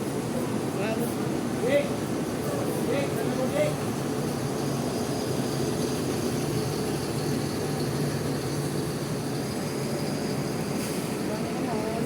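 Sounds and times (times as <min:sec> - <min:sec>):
diesel bus engine droning: 0:00.0 - 0:12.0.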